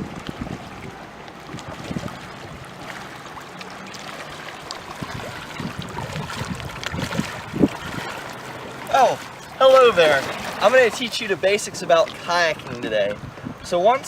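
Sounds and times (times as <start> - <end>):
water lapping around kayak: 0.0 - 14.0
light ticks and drips: 0.2 - 7.3.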